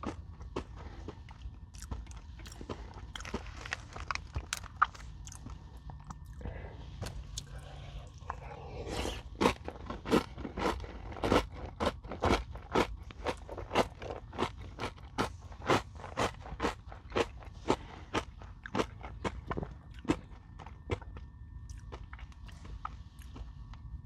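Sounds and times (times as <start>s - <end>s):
crunchy chewing: 0.0s - 24.0s.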